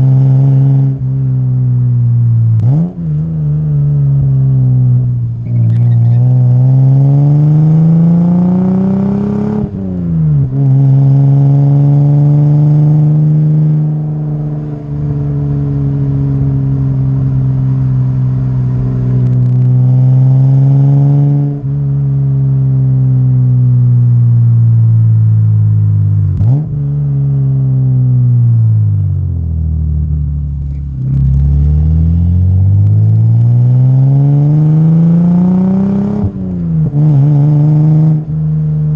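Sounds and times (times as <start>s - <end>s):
car engine through exhaust: 0.0s - 38.9s.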